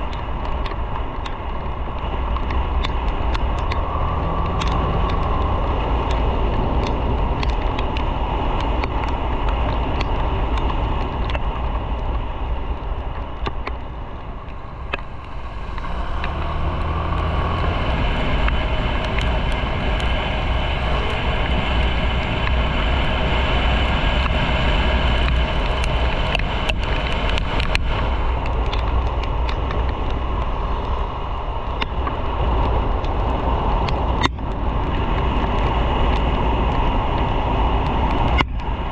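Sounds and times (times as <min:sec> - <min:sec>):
motorcycle engine running: 0:00.0 - 0:38.9
road and wind noise: 0:00.0 - 0:38.9.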